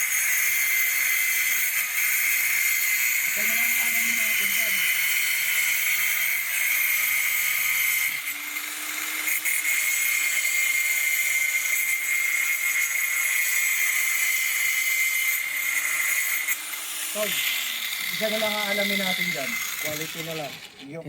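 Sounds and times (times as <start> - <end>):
angle grinder motor whining: 0.0 - 21.0.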